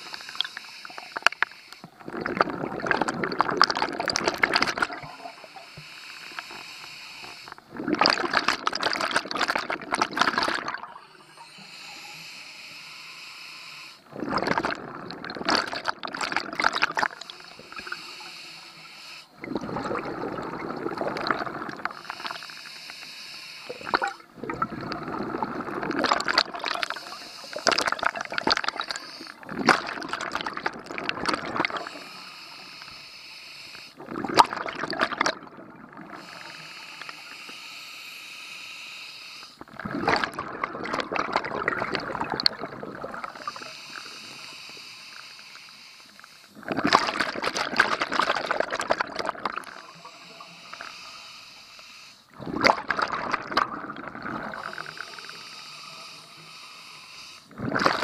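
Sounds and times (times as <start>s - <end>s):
hissing regulator inhalations: 0.0s - 2.0s, 4.7s - 7.8s, 10.4s - 14.6s, 16.2s - 24.3s, 26.0s - 29.5s, 31.5s - 34.0s, 36.0s - 39.7s, 42.2s - 46.6s, 49.6s - 52.4s, 54.5s - 57.6s
bubbling underwater exhalations: 1.1s - 5.4s, 7.6s - 11.4s, 14.1s - 17.9s, 19.4s - 22.6s, 23.7s - 32.1s, 34.0s - 36.6s, 39.6s - 44.0s, 46.6s - 50.0s, 52.3s - 55.5s, 57.5s - 58.0s.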